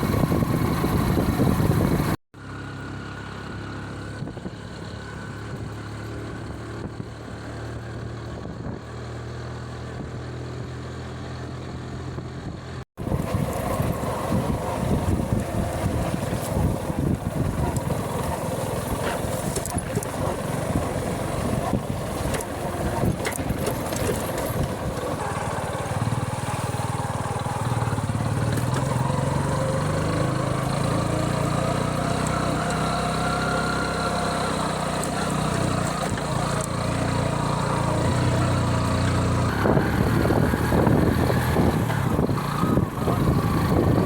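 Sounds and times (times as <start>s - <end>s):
wind rushing over microphone: 0.0s - 2.2s, 12.2s - 31.9s, 37.9s - 44.0s
motorcycle engine running: 0.0s - 44.0s.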